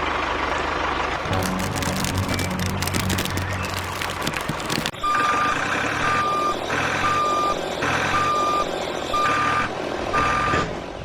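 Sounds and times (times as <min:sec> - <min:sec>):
low engine rumble: 0:00.8 - 0:04.9
reversing alarm beeping: 0:06.1 - 0:10.7.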